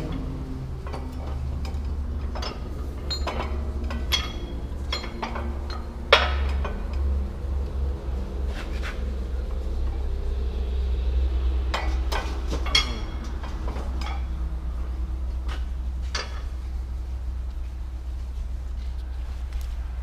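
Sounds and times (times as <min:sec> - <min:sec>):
metal tools clinking: 0:00.0 - 0:06.9, 0:12.1 - 0:14.4
steady low hum: 0:00.0 - 0:20.0.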